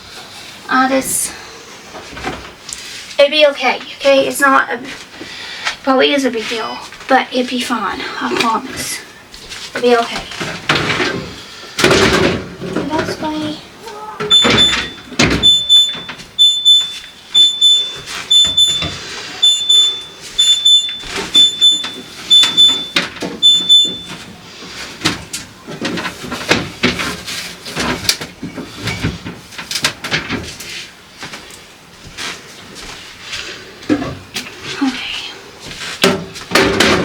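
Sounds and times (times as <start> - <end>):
refrigerator alarm beeping: 14.2 - 24.4
knocks and clatter: 25.0 - 30.6, 36.0 - 37.0.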